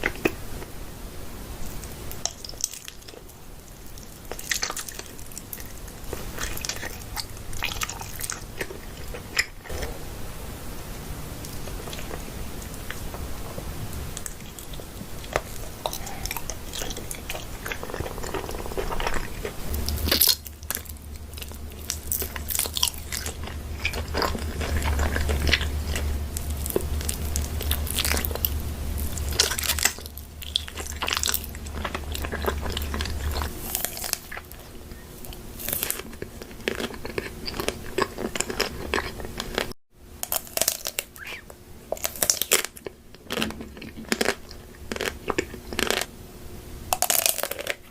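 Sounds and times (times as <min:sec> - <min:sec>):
crunchy food chewing: 0:01.6 - 0:10.0, 0:11.4 - 0:46.1, 0:46.9 - 0:47.9
low hum: 0:05.0 - 0:37.5.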